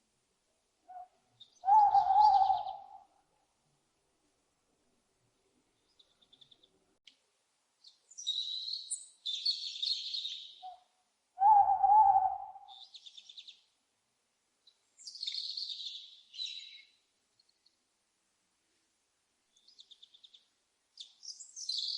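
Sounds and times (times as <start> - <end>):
owl hoot: 0.9 - 3.1, 11.4 - 12.8
owl screeches: 1.7 - 2.8.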